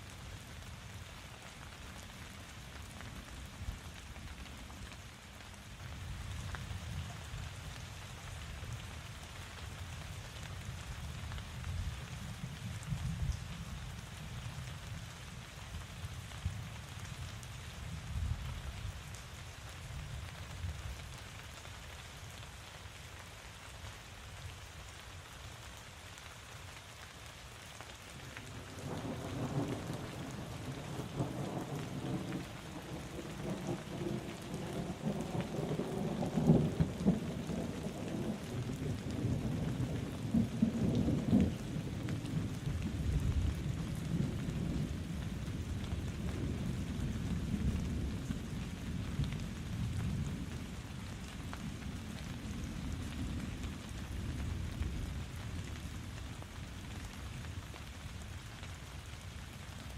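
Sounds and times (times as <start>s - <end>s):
steady rain falling: 0.0s - 59.9s
rolling thunder rumble: 28.7s - 50.8s.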